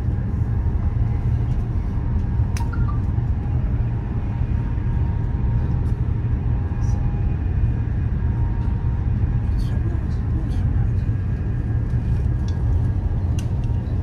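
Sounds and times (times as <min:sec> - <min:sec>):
train rumbling at speed: 0:00.0 - 0:14.0.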